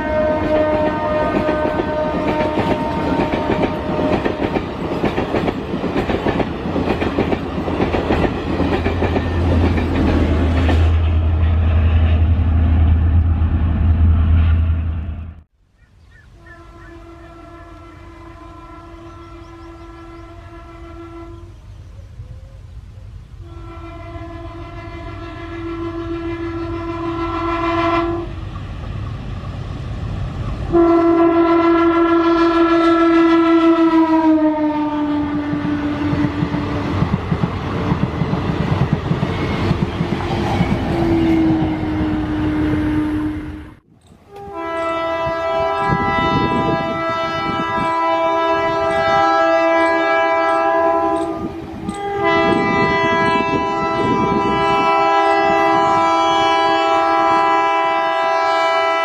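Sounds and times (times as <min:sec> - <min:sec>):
train horn blasts: 0:00.0 - 0:05.2, 0:16.3 - 0:21.7, 0:23.4 - 0:28.5, 0:30.7 - 0:36.9, 0:40.6 - 0:59.0
train wheels rumbling on rails: 0:00.0 - 0:15.5, 0:32.7 - 0:58.6.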